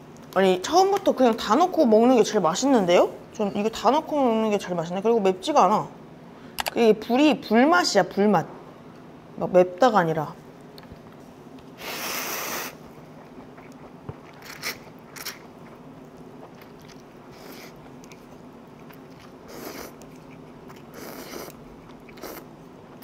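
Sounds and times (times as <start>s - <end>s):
person chewing noodles: 12.0s - 23.0s.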